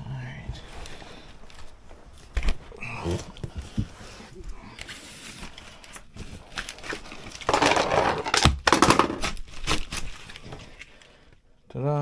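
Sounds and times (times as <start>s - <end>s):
air filter rustling and scraping: 3.5s - 8.4s.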